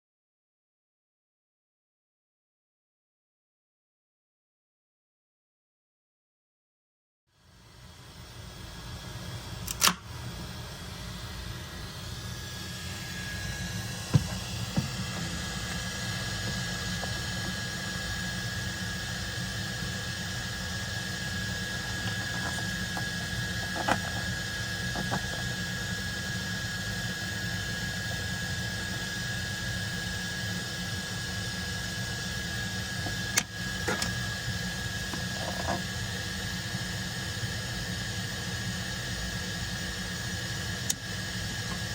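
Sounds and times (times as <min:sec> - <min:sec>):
small motorised tool whirring: 0:12.0 - 0:41.9.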